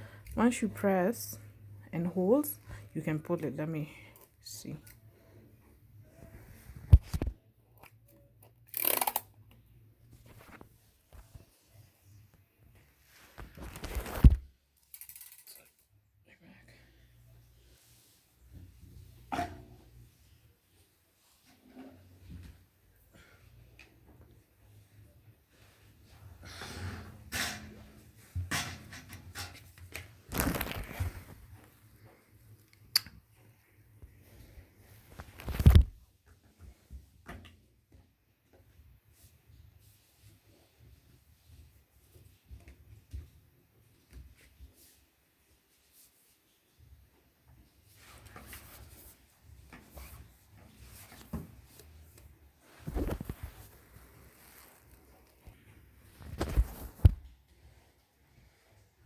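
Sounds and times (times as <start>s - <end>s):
rustling and scraping of vacuum parts: 10.0s - 15.8s, 25.6s - 32.5s, 47.7s - 59.0s
plastic parts rustling: 13.4s - 15.8s, 30.2s - 31.4s.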